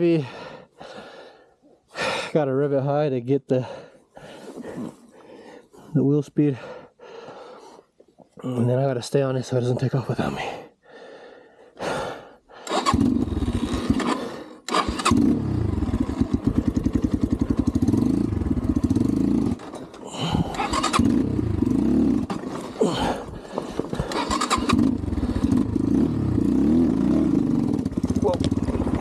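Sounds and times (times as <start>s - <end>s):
dirt bike engine revving: 12.7s - 29.0s.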